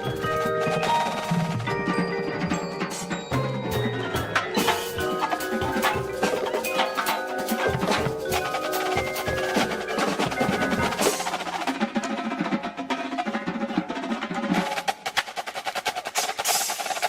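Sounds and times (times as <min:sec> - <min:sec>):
mallet keyboards ringing: 0:00.0 - 0:12.0
snare drum strokes and rolls: 0:00.0 - 0:17.0.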